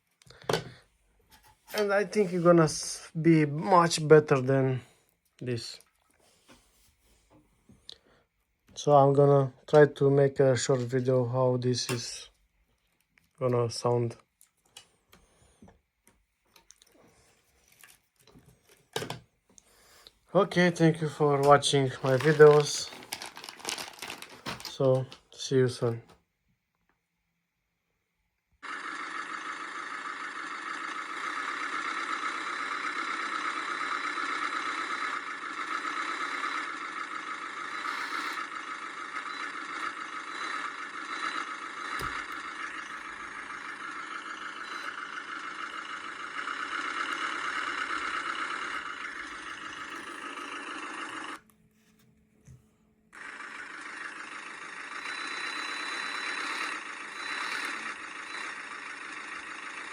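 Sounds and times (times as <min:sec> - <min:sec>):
simulated tractor engine through speaker: 0:01.7 - 0:05.8, 0:08.8 - 0:12.3, 0:20.3 - 0:23.0, 0:28.6 - 0:51.4, 0:53.2 - 0:59.9.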